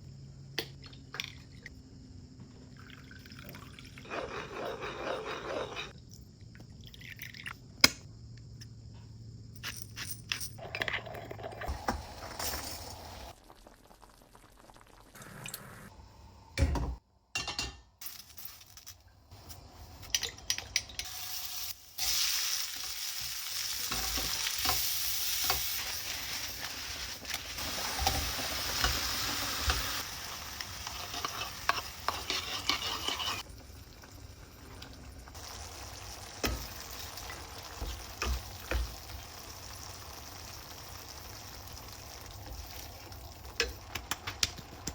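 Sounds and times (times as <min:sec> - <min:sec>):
food sizzling in a pan: 0:11.7 - 0:15.9, 0:21.0 - 0:44.9.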